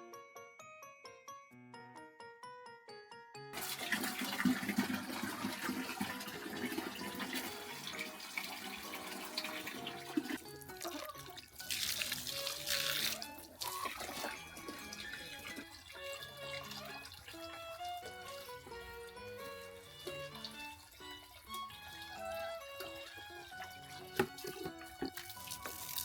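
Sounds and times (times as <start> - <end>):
gentle music with chimes: 0.0 - 3.7, 13.3 - 24.2
water running: 3.6 - 26.0.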